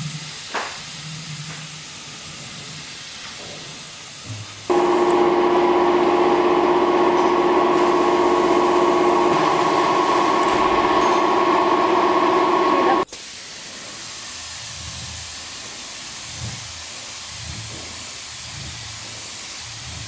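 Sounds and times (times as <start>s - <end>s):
machine running with hum: 4.7s - 13.1s.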